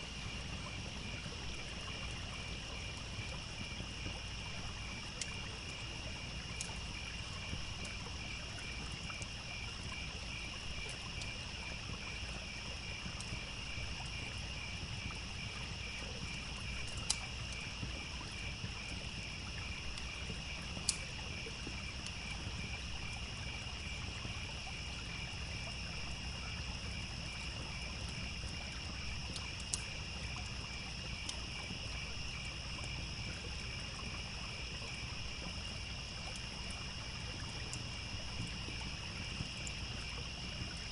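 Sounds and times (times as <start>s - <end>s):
crickets chirping: 0.0s - 40.9s
flowing water: 0.0s - 40.9s
insect drone: 0.0s - 40.9s
wood fire popping: 1.5s - 11.4s, 15.8s - 23.3s, 27.4s - 31.6s.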